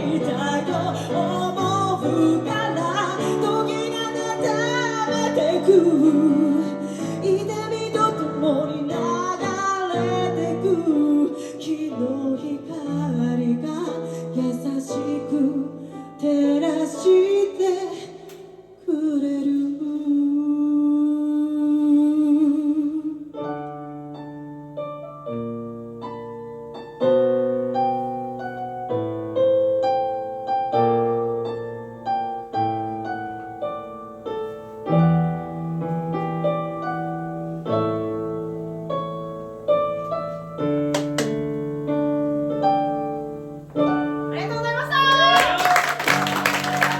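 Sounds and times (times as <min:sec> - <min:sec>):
piano chords: 0:00.0 - 0:19.3, 0:21.4 - 0:46.9
woman singing with vibrato: 0:00.0 - 0:23.3.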